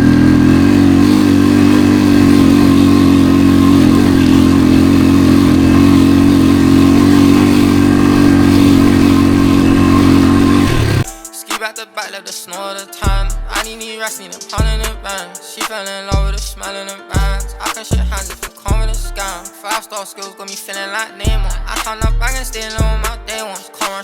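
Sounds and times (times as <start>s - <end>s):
small motor vehicle engine running: 0.0s - 11.1s.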